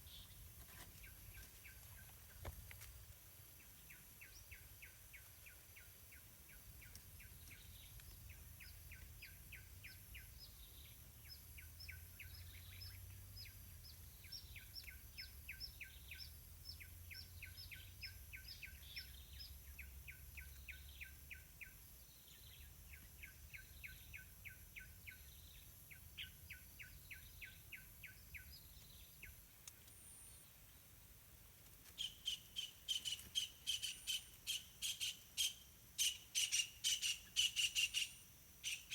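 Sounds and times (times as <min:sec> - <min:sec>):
bird chirping: 0:32.0 - 0:38.9.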